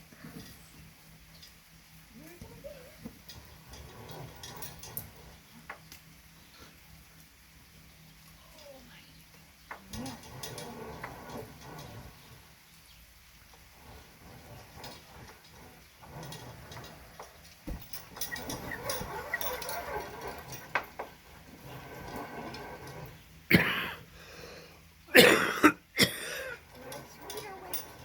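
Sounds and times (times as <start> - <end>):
taps and rustling: 14.7 - 21.2.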